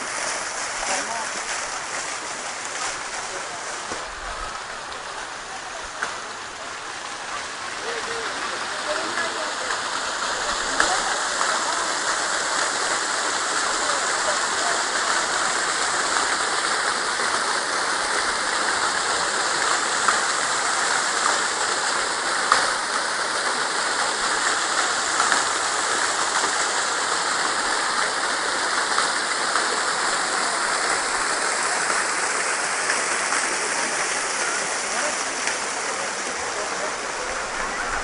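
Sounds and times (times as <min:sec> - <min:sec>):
falling water rushing: 0:00.0 - 0:38.0.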